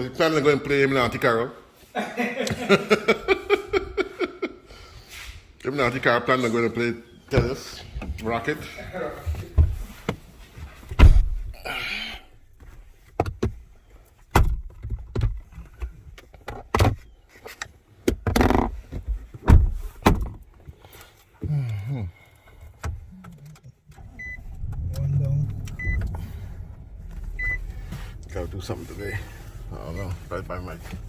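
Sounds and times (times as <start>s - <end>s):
sharp knocks and thuds: 10.9s - 11.5s, 18.1s - 20.4s.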